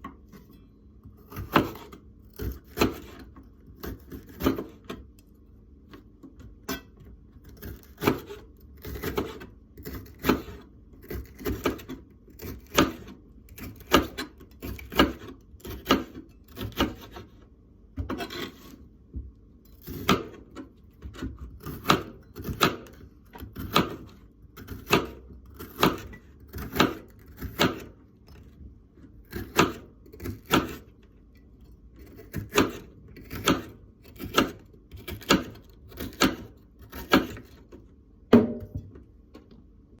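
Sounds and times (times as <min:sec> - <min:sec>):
knife knocking on cutting board: 0:38.3 - 0:38.9.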